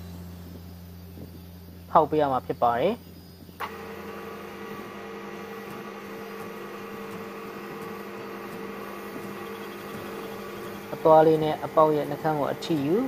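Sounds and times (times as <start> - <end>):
lathe motor humming: 3.6 - 13.0.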